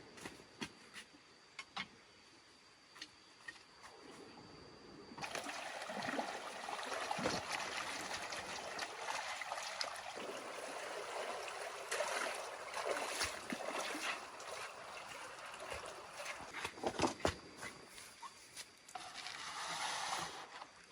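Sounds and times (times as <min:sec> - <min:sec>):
water trickling and splashing: 0:05.2 - 0:17.0.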